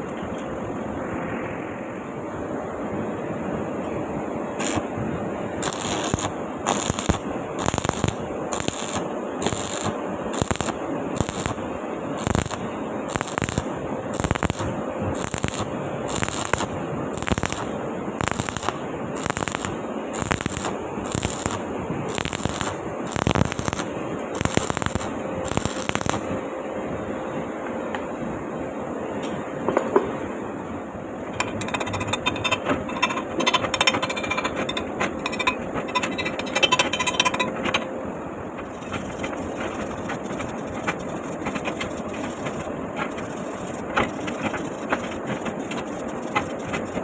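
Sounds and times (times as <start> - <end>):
arc welding crackle: 4.6 - 4.9, 5.6 - 26.4, 31.3 - 37.9, 38.6 - 47.0.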